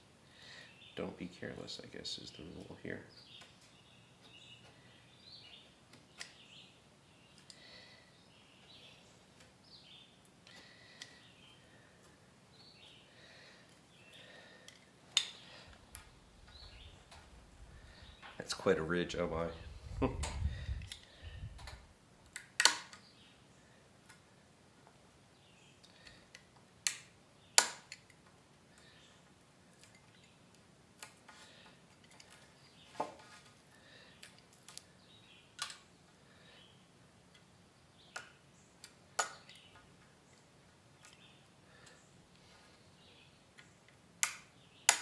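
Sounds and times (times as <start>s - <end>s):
faint bird chirps: 15.3s - 21.7s
sharp clicks: 20.2s - 23.0s, 25.8s - 28.2s, 44.2s - 45.0s
sharp taps and clicks: 26.8s - 28.1s.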